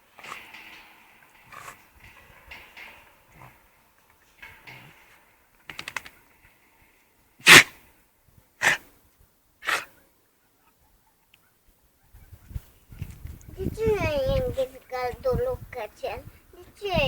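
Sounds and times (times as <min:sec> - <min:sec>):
dog sniffing: 0:07.4 - 0:07.7
dog sneezing: 0:07.4 - 0:07.8, 0:08.6 - 0:08.8, 0:09.6 - 0:09.9.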